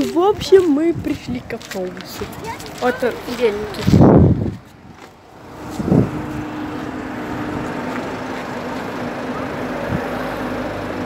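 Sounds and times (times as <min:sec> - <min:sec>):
minibus engine idling: 0:05.1 - 0:11.0.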